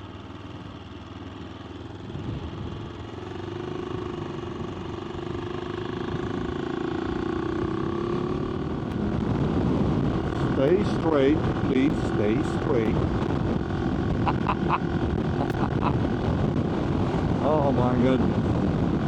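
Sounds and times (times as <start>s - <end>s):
motorcycle engine running: 0.0s - 19.0s
wind on microphone: 7.4s - 19.0s.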